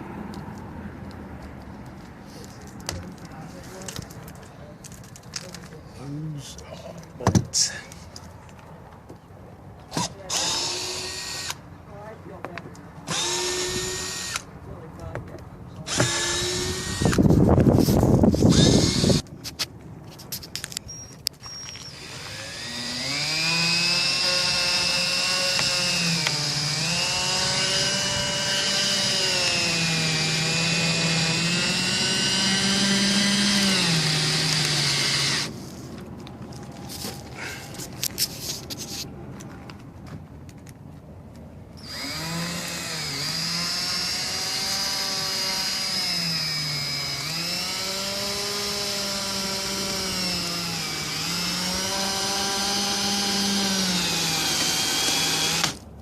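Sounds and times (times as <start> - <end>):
power drill driving screws: 9.9 - 11.6, 13.0 - 14.5, 15.9 - 17.3, 18.3 - 19.2, 20.9 - 35.5, 41.8 - 55.8.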